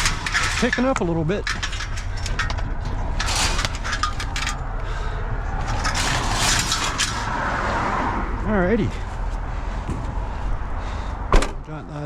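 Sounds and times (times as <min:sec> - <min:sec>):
scrap metal clattering: 0:00.0 - 0:07.6.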